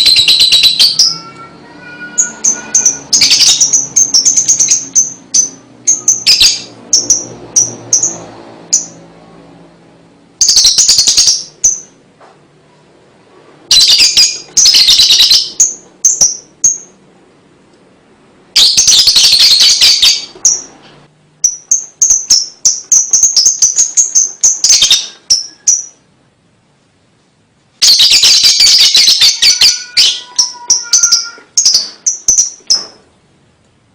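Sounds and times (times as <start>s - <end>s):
bird chattering: 0.0s - 8.2s.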